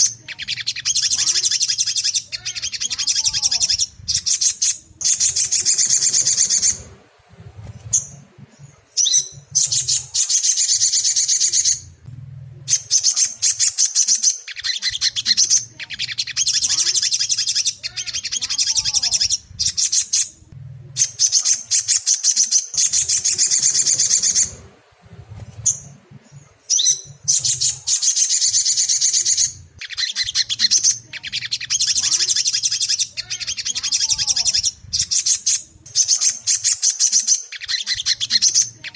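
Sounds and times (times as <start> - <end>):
bird high-pitched rattling trills: 0.0 - 12.0, 12.7 - 20.4, 21.0 - 24.6, 25.3 - 38.9.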